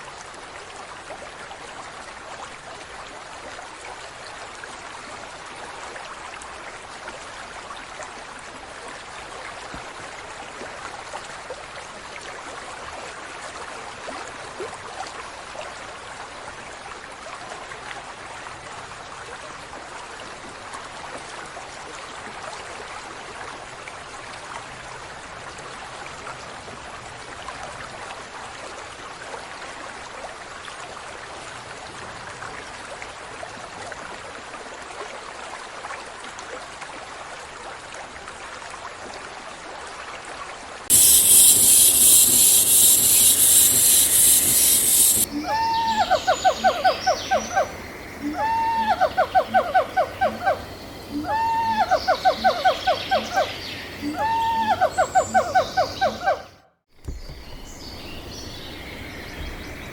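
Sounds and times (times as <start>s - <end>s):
running water splashing: 40.9s - 47.8s.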